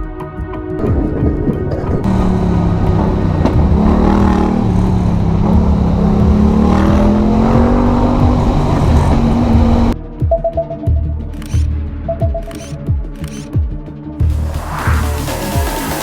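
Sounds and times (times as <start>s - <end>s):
vehicle engine running: 0.8s - 10.0s
wind and road noise: 0.8s - 10.0s.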